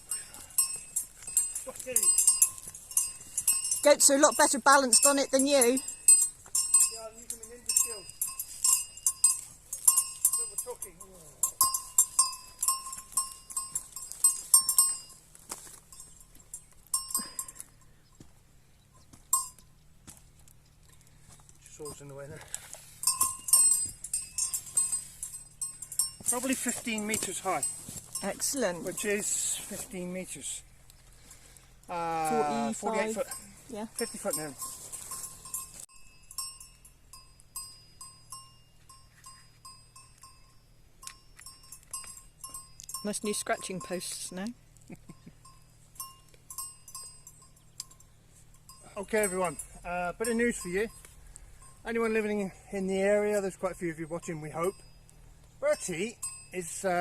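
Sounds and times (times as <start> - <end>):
small metal bell clanking: 0.0 - 18.2, 18.8 - 19.8, 21.8 - 30.7, 32.3 - 57.0.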